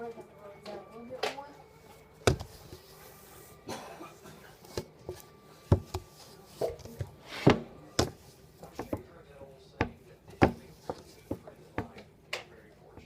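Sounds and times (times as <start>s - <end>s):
kitchen utensils knocking on board: 2.3s - 2.6s, 4.8s - 9.0s, 9.8s - 12.0s.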